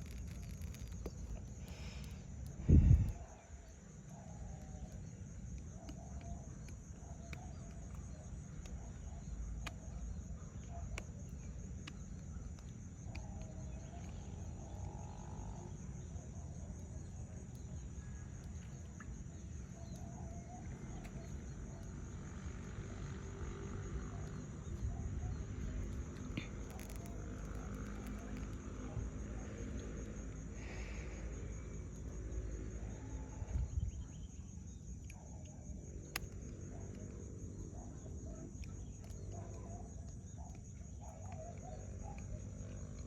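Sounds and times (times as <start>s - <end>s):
low rumble: 2.4s - 3.3s
sharp clicks: 25.7s - 28.6s, 36.1s - 37.2s.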